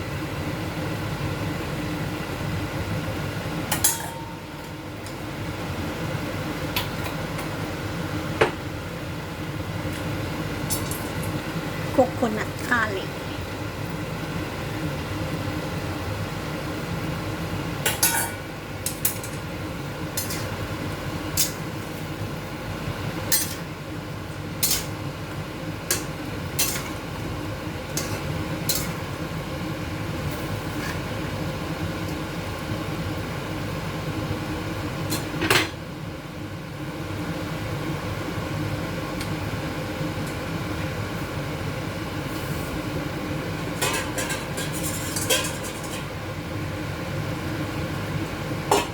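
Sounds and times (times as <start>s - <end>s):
utensil clinking against a pot: 3.7s - 4.4s, 20.2s - 20.5s, 25.9s - 26.9s.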